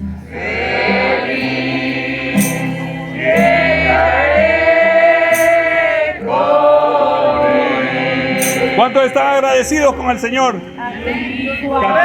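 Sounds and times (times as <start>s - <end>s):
bass notes: 0.0s - 11.2s
voices singing worship song: 0.0s - 12.0s
cymbal strikes: 2.3s - 4.0s.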